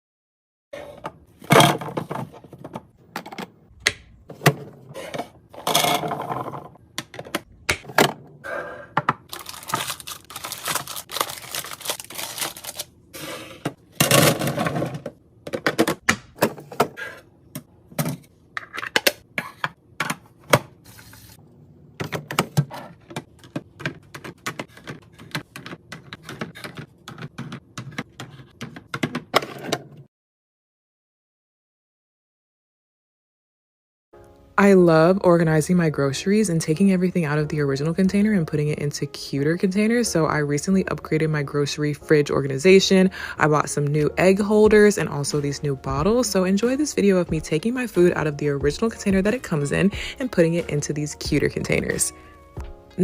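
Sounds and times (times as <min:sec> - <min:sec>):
packaging crinkling: 0:09.3 - 0:12.9.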